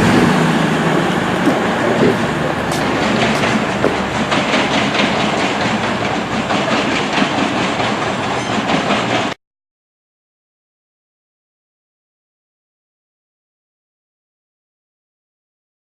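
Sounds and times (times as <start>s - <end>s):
train rumble and hiss: 0.0s - 9.4s
wheels clicking over rail joints: 0.0s - 9.4s.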